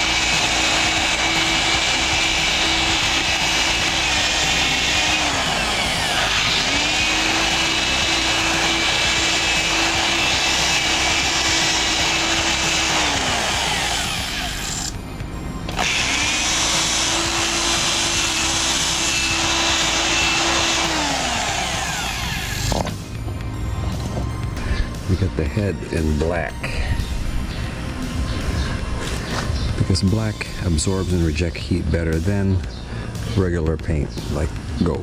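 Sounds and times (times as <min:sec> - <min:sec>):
rotary grinder grinding metal: 0:00.0 - 0:15.0, 0:15.7 - 0:23.0.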